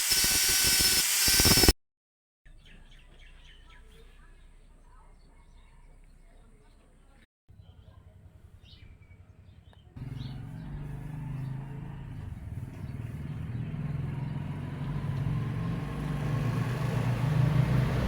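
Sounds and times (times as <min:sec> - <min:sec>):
hiss: 0:00.0 - 0:01.7
motor humming: 0:00.0 - 0:01.7.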